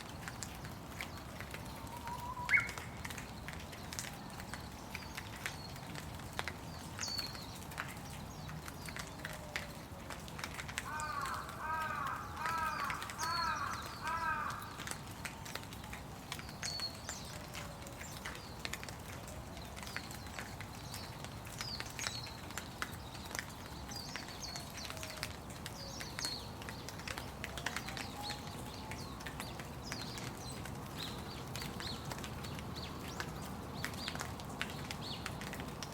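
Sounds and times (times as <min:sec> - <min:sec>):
steady rain: 0:00.0 - 0:35.9.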